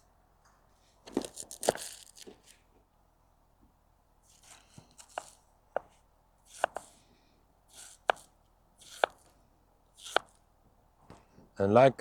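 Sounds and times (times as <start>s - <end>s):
knife slicing onto cutting board: 4.3s - 5.4s, 6.5s - 6.9s, 7.7s - 9.3s, 10.0s - 10.4s.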